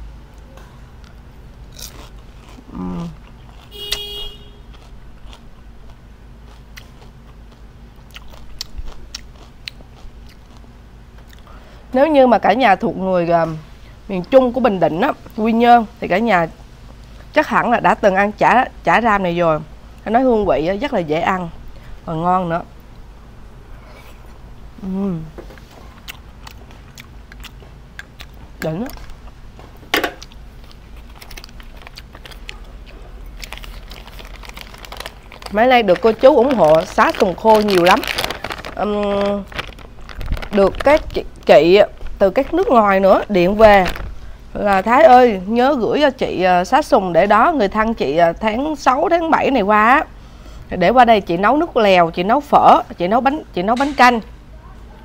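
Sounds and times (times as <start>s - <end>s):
person chewing crispy food: 1.0s - 4.0s, 4.6s - 11.7s, 25.6s - 42.7s.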